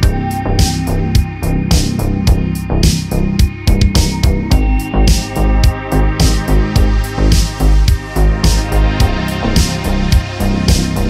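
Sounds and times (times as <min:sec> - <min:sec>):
electronic music with drums and bass: 0:00.0 - 0:11.0.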